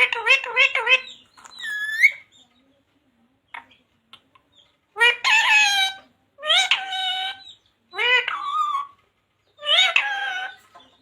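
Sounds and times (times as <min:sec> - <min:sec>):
parrot calling: 0:00.0 - 0:02.3, 0:04.9 - 0:09.0, 0:09.6 - 0:10.9.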